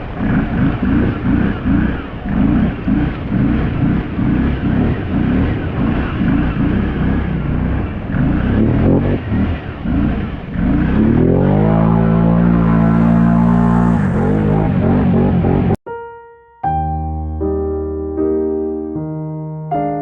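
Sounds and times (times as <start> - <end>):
atv engine droning: 0.0 - 15.8
rising tone sweep: 0.0 - 15.8
music: 15.9 - 20.0.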